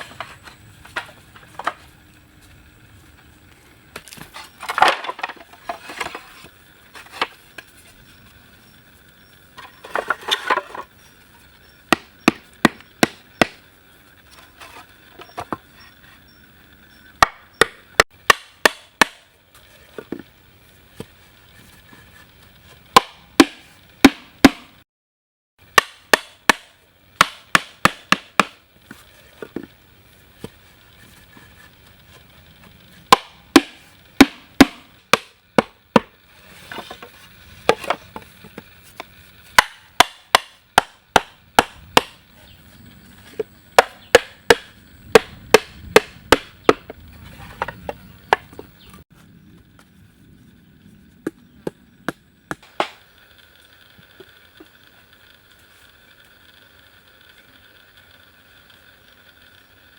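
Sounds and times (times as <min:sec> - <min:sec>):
blade chopping into wood: 0:11.9 - 0:13.6, 0:17.2 - 0:19.3, 0:23.0 - 0:24.7, 0:25.8 - 0:28.6, 0:33.1 - 0:37.0, 0:39.6 - 0:42.2, 0:43.8 - 0:46.9, 0:51.2 - 0:53.0.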